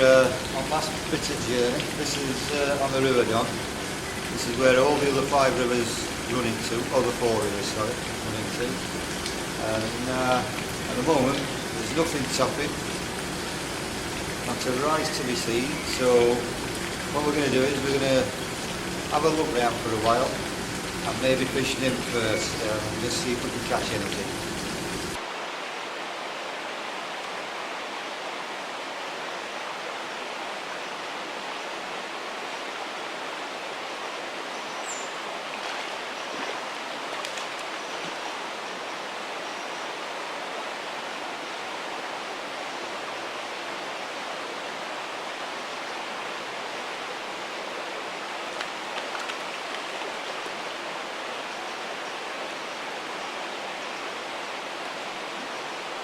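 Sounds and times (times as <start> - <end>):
water running over stones: 0.0 - 25.3, 29.0 - 56.0
faint ticks: 9.1 - 9.4.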